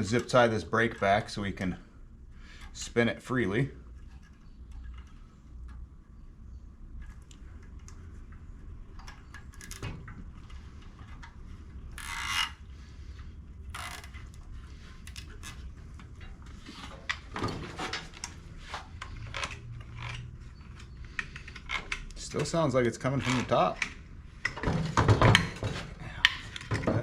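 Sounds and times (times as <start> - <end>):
mower engine ratcheting clicks: 12.0 - 12.6.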